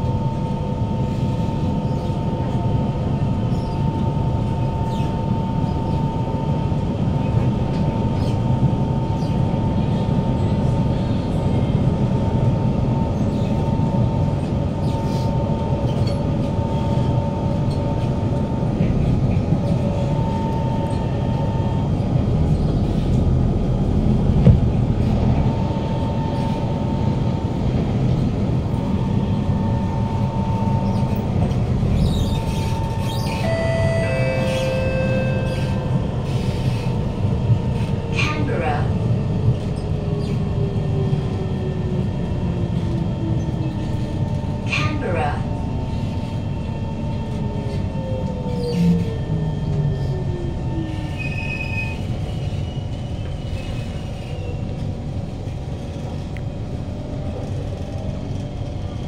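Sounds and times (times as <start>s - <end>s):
wheel and track rumble: 0.0s - 59.0s
high motor tone: 32.4s - 36.4s.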